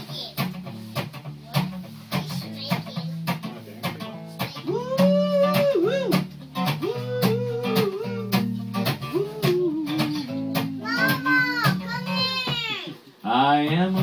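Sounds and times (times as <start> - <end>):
bass guitar: 0.0 - 12.8
strummed guitar: 0.0 - 14.0
person singing slow melody: 4.6 - 11.9.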